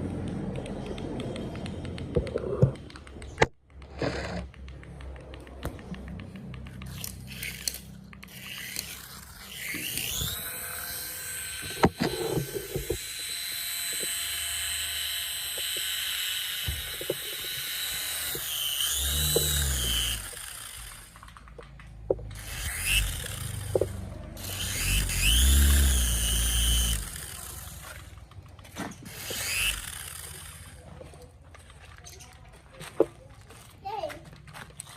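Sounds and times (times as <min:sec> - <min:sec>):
sharp clicks: 0:00.0 - 0:30.9
small electric motor whining: 0:06.7 - 0:21.5, 0:22.3 - 0:31.0.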